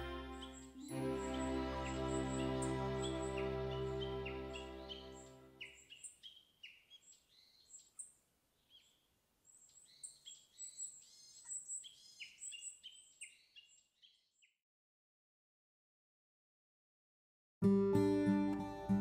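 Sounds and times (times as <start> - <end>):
songbirds chirping and twittering: 0.0 - 14.6.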